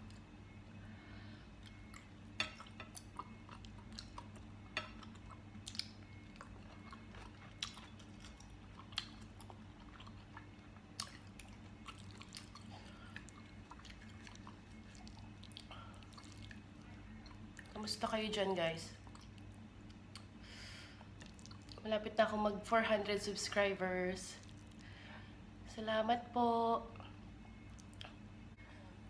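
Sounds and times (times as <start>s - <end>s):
person chewing: 1.6s - 17.8s, 19.0s - 20.3s, 21.1s - 21.8s, 24.4s - 25.0s.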